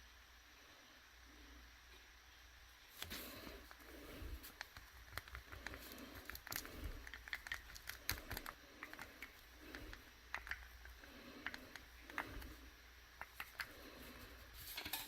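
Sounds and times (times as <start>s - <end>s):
small hard objects clicking: 4.5s - 12.5s.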